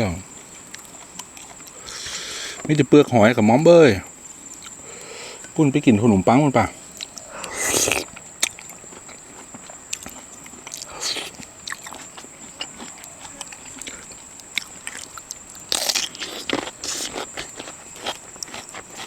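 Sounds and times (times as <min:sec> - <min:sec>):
high insect drone: 0:00.0 - 0:19.0
clicks and crunches of eating: 0:00.4 - 0:02.8, 0:04.4 - 0:04.8, 0:06.9 - 0:19.0.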